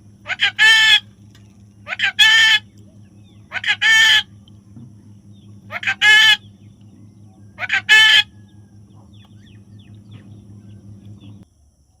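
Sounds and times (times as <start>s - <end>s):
faint chirps: 0.0s - 11.4s
parrot harsh squawk: 0.2s - 1.0s, 1.8s - 2.6s, 3.5s - 4.3s, 5.7s - 6.4s, 7.6s - 8.3s.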